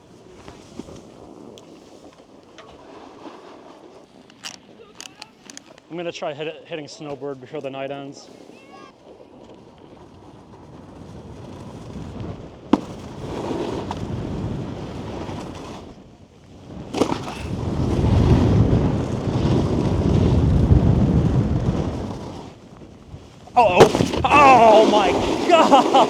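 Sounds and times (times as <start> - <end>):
snowboard sliding over packed snow: 0.0 - 4.9, 7.0 - 26.0
wind on microphone: 9.6 - 26.0
heavy thump of board landing: 23.7 - 24.4.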